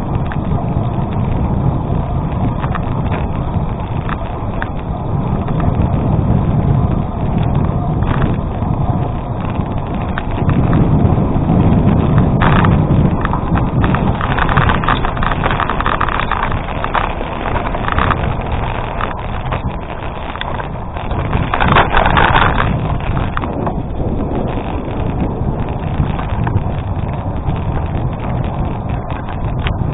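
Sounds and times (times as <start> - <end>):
bike clicks and rattles: 0.0 - 29.9
wind rumble on microphone: 0.0 - 29.9
tyres crunching on gravel: 11.6 - 29.9.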